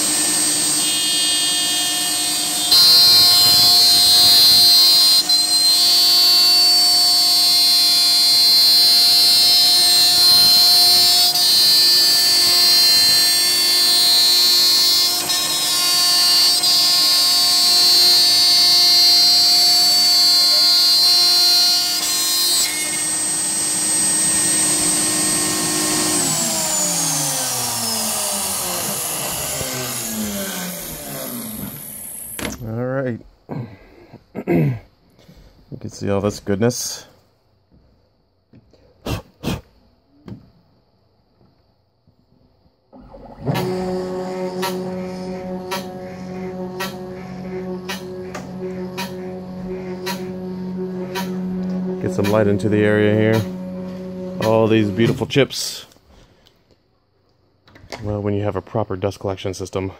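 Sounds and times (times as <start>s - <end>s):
cnc router spindle whining: 0.0s - 32.4s, 43.0s - 55.8s
spindle spinning down: 22.6s - 32.6s, 43.0s - 55.4s.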